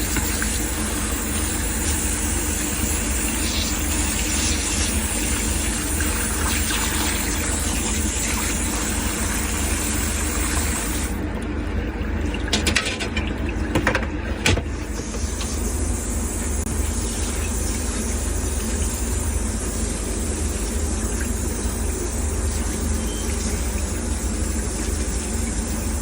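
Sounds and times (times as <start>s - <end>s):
refrigeration machinery humming: 0.0s - 26.0s.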